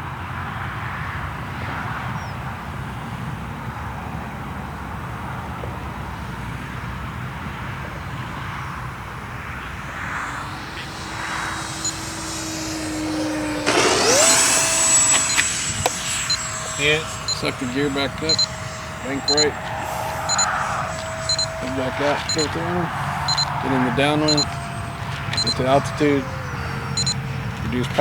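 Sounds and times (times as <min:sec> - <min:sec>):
model airplane motor whining: 0:08.9 - 0:28.0.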